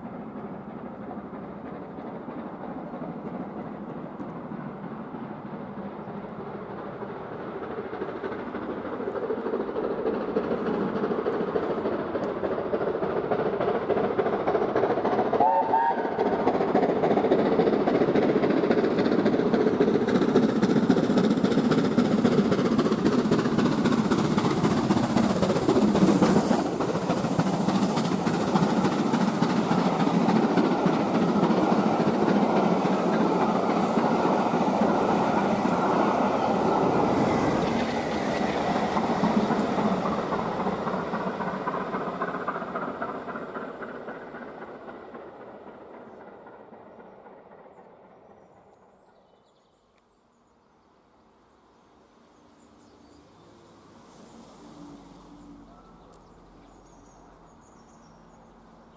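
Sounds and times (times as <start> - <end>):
steam train running: 0.0 - 49.8, 51.0 - 58.9
wheels clattering over rail joints: 5.8 - 47.6.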